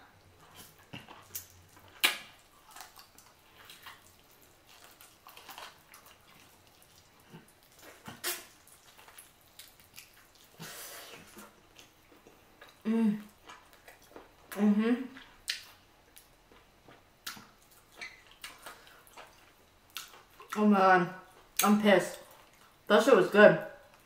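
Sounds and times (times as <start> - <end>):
wet chewing and mouth sounds: 0.1 - 22.9
lip smacks and sucking: 0.6 - 11.9.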